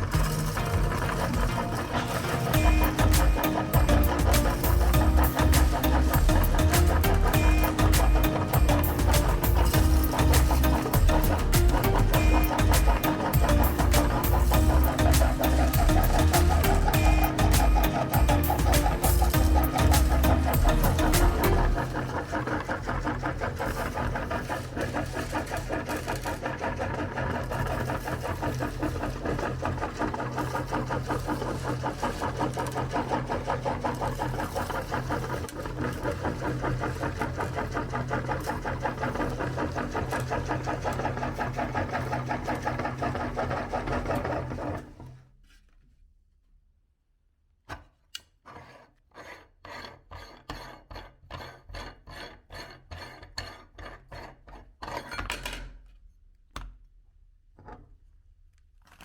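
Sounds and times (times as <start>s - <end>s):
electric meat grinder crunching candy: 0.0s - 45.2s
scraping strokes: 0.0s - 45.6s.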